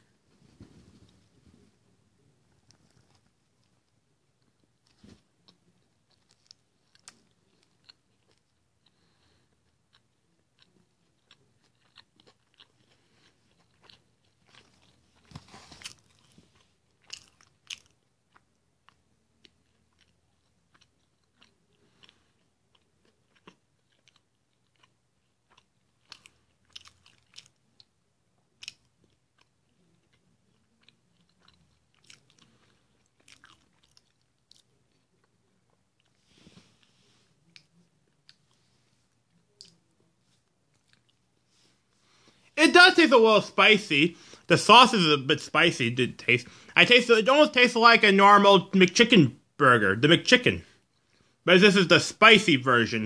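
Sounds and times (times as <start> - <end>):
chewing and crunching: 2.5 - 42.3.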